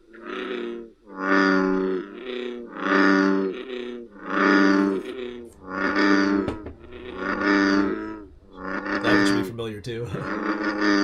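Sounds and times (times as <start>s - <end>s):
frog calls through small speaker: 0.1s - 11.0s.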